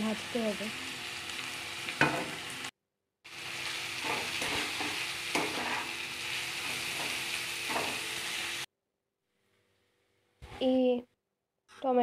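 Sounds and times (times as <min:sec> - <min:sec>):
vegetables sizzling in hot oil: 0:00.0 - 0:02.7, 0:03.3 - 0:08.7
spatula scraping pan: 0:03.9 - 0:08.6.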